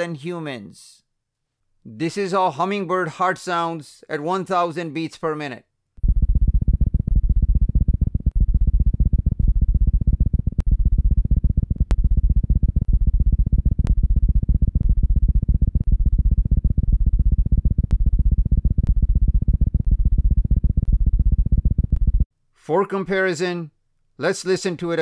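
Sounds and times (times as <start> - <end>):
fast heartbeat thuds: 6.0 - 22.3.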